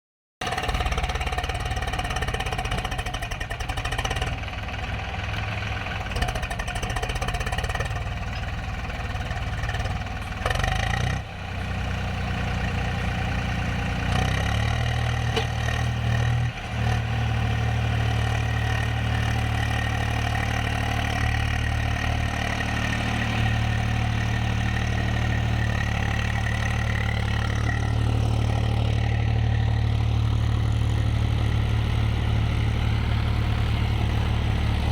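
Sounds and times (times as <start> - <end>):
tractor diesel engine running: 0.4 - 34.9.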